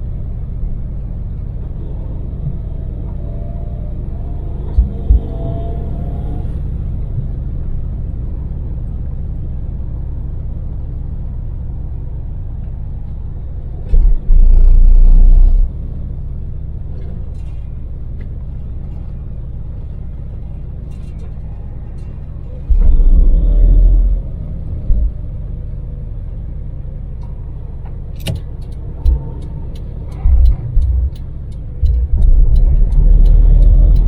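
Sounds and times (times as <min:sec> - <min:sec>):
loud low buffeting: 0:00.0 - 0:07.2, 0:22.5 - 0:34.0
van engine and road noise: 0:00.0 - 0:34.0.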